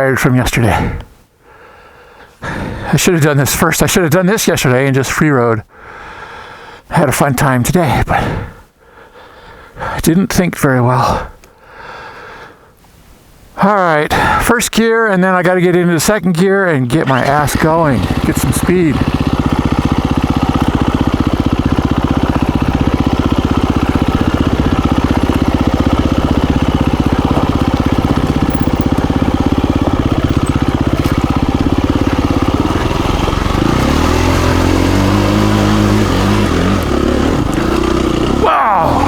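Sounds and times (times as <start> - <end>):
dirt bike engine running: 17.0 - 39.0.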